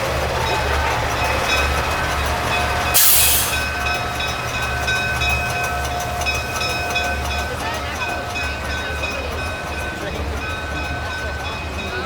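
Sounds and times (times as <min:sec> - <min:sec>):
truck diesel engine idling: 0:00.0 - 0:12.0
hissing air burst: 0:03.0 - 0:03.7.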